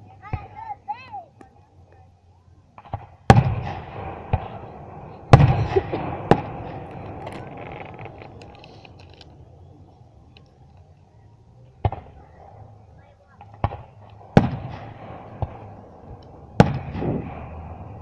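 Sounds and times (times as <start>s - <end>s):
faint firework crackling: 0.0s - 18.0s
firework booms: 2.8s - 8.4s, 13.4s - 18.0s.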